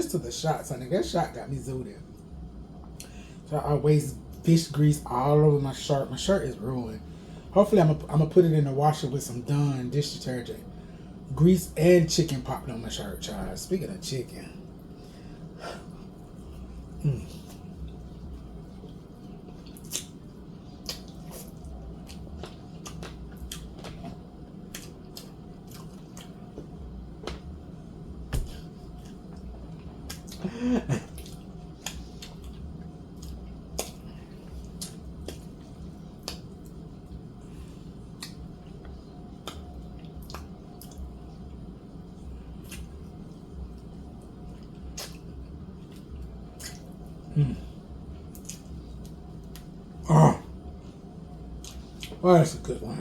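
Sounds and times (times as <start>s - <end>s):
biting and chewing: 17.3s - 27.6s.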